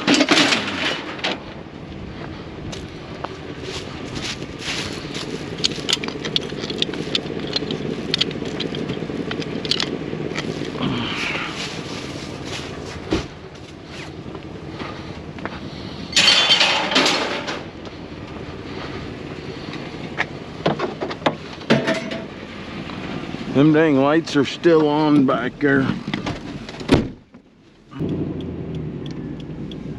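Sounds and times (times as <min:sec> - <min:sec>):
scrap metal clanking: 0:00.0 - 0:01.5, 0:16.1 - 0:17.7, 0:20.8 - 0:22.4
scraping clatter: 0:00.0 - 0:01.5, 0:03.6 - 0:14.2, 0:16.0 - 0:17.7
low vehicle hum: 0:00.0 - 0:29.9.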